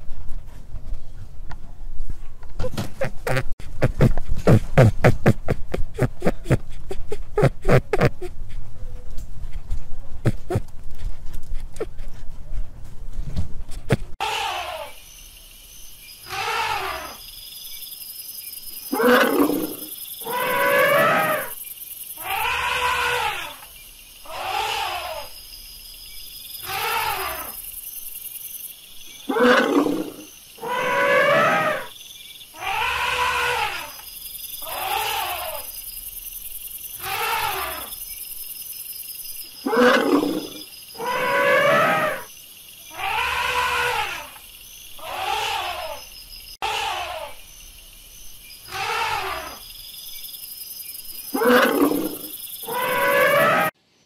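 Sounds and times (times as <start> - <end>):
elephant calls: 14.2 - 15.0, 16.2 - 17.2, 18.9 - 21.6, 22.2 - 23.6, 24.3 - 25.3, 26.6 - 27.6, 32.6 - 34.0, 34.6 - 35.7, 37.0 - 37.9, 39.6 - 44.4, 45.0 - 47.5, 48.7 - 49.6, 51.3 - 53.8.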